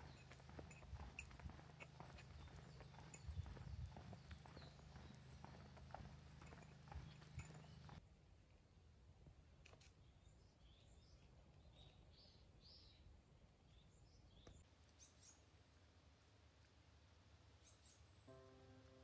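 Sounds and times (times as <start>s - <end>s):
distant bird chirps: 0.0s - 8.0s.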